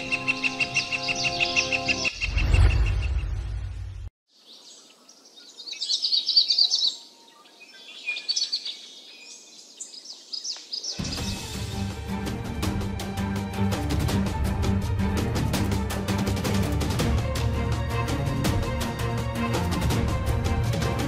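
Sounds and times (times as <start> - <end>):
music: 0.0 - 2.1, 11.0 - 21.0
birds chirping and trilling: 0.0 - 12.2.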